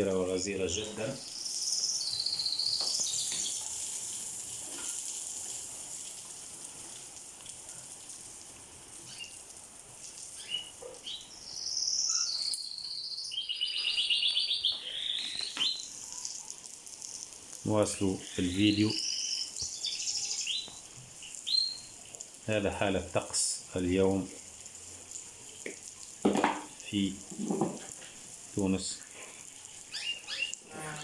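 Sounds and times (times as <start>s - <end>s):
songbird chirping and trilling: 1.1s - 3.6s, 9.1s - 9.4s, 10.4s - 16.5s, 18.1s - 22.0s, 29.9s - 31.0s
heavy rain hissing: 14.8s - 31.0s.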